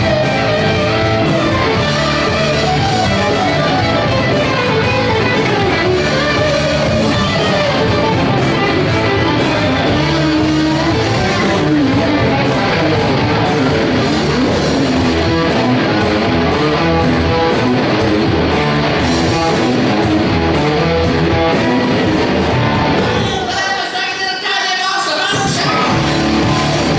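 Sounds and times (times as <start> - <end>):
live rock band playing: 0.0 - 24.1, 25.3 - 26.9
distorted electric guitar: 0.0 - 26.9.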